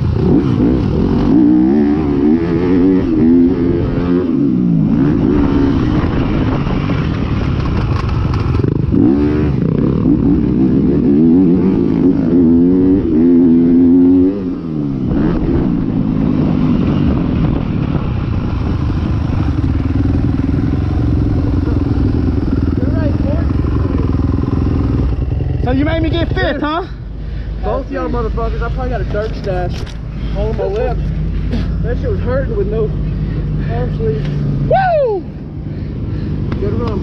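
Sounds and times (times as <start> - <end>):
motocross bike engine revving: 0.0 - 17.5, 18.2 - 26.8.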